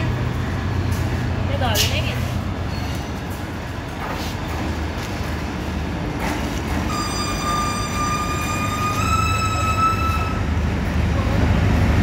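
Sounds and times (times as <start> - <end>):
diesel train low rumble: 0.0 - 12.0
train brakes squealing: 2.6 - 3.2, 6.9 - 10.6.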